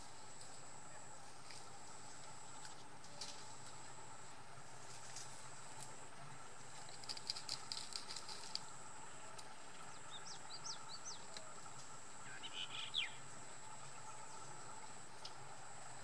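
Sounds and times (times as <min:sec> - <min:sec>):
birds chirping: 0:09.8 - 0:11.4, 0:12.2 - 0:14.8.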